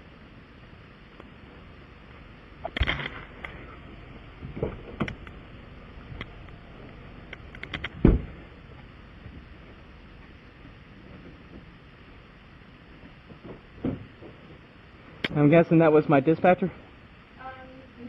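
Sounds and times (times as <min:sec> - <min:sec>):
heavy thump: 0:08.0 - 0:08.4.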